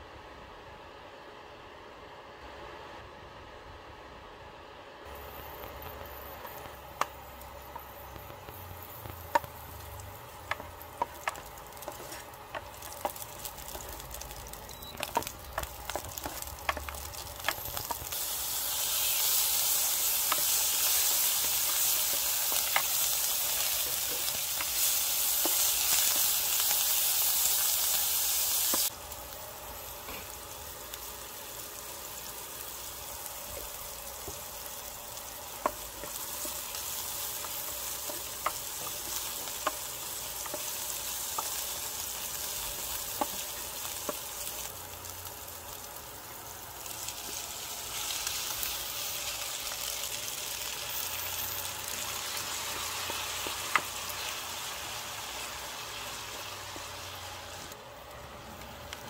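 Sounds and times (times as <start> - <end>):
garlic frying in oil: 5.1 - 59.0
chicken sizzling in hot oil: 5.3 - 58.1.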